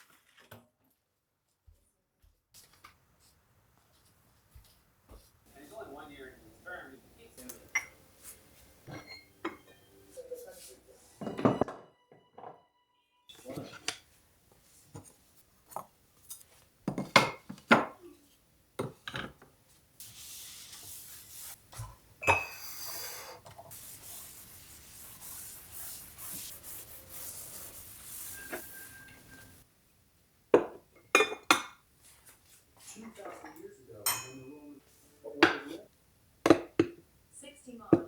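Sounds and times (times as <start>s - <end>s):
dishes and utensils clinking: 7.4s - 12.6s, 13.3s - 14.1s, 21.8s - 23.6s, 28.2s - 29.6s, 30.6s - 31.8s, 32.8s - 34.8s, 35.4s - 35.8s.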